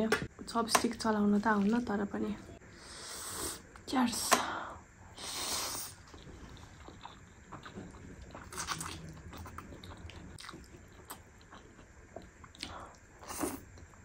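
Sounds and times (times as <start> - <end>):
chewing and slurping noodles: 5.9 - 13.9.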